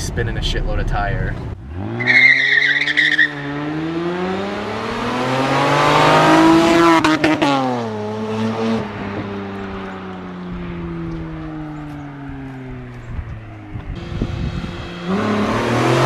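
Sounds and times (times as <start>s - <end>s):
car exhaust accelerating past: 0.4s - 16.0s.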